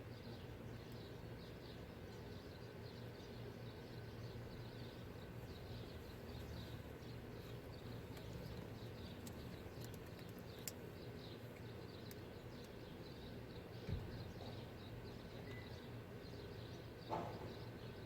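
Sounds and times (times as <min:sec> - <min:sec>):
low outdoor hum: 0:00.0 - 0:18.0
small birds chirping: 0:00.0 - 0:18.0
sharp clicks: 0:08.1 - 0:10.9.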